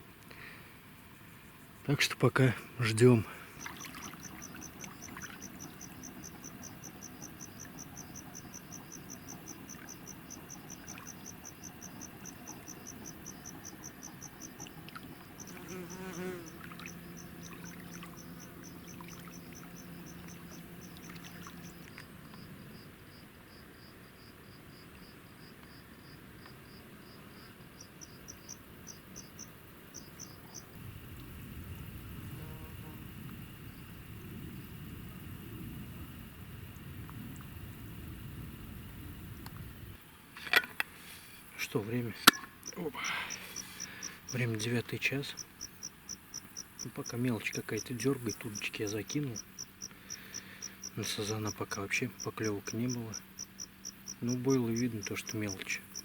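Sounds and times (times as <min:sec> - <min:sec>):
faint low hum: 0:00.0 - 0:26.0
lower-pitched insect chirping: 0:00.0 - 0:40.2, 0:40.8 - 0:56.0
crickets chirping: 0:00.0 - 0:56.0.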